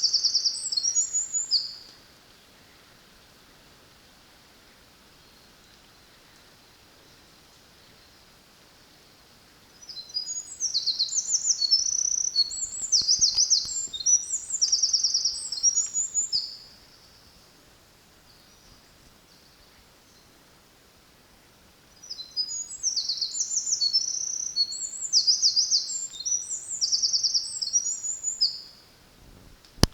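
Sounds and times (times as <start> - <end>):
faint steady hiss: 0.0 - 29.9
wren singing trills: 9.8 - 16.6, 22.0 - 28.6.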